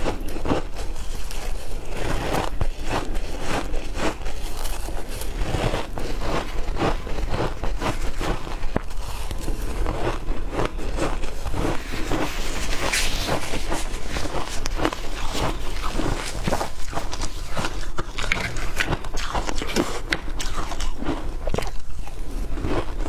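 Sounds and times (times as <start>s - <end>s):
shaved ice crunching: 0.3s - 23.0s.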